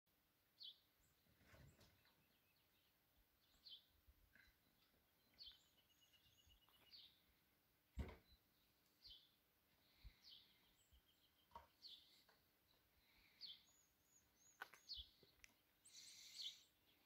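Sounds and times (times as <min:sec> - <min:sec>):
faint bird chirps: 0:00.6 - 0:07.4, 0:08.1 - 0:17.0
thump: 0:07.9 - 0:08.3.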